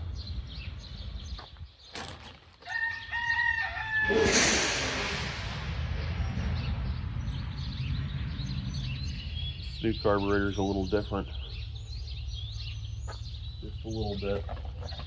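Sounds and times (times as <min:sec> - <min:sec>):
rooster crowing: 0:02.6 - 0:04.4
loud rushing hiss: 0:04.0 - 0:07.2.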